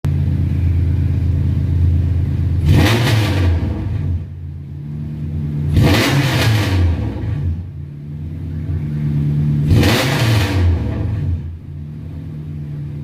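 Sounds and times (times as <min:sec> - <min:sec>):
car engine idling: 0:00.1 - 0:13.0
engine revving: 0:02.5 - 0:13.0.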